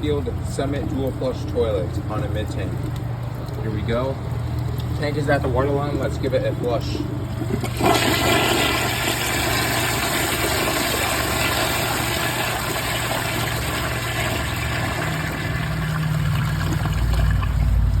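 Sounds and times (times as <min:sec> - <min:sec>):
toilet flushing: 0:04.8 - 0:18.0.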